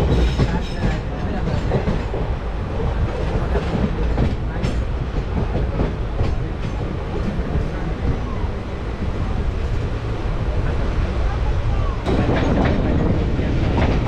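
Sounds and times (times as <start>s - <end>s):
wheels clacking over rail joints: 0.0s - 8.2s, 12.0s - 14.0s
wheels rumbling on rails: 0.0s - 14.0s.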